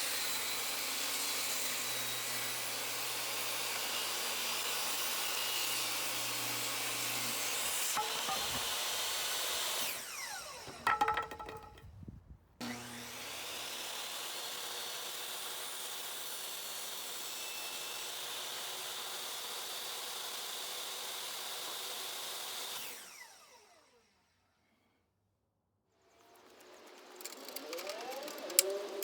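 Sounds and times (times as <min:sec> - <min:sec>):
table saw cutting wood: 0:00.0 - 0:10.8, 0:12.6 - 0:23.1
sharp knocks: 0:08.0 - 0:08.8, 0:10.7 - 0:11.8.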